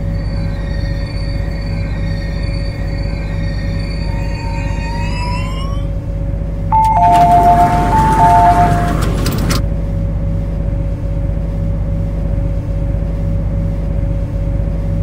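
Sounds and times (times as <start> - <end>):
constant tone: 0.0 - 9.6
electric train humming: 0.0 - 11.1.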